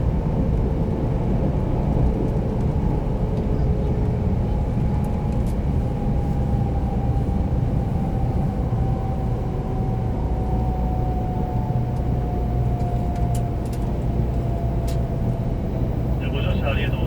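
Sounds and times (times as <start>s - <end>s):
train cabin rumble: 12.2s - 17.0s.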